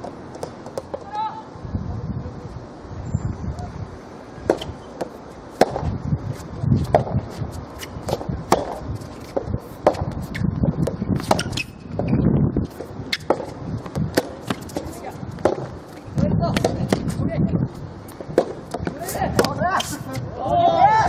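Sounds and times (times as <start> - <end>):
tennis ball pocks: 4.4 - 5.9, 7.8 - 11.8, 12.7 - 17.2, 18.2 - 20.0.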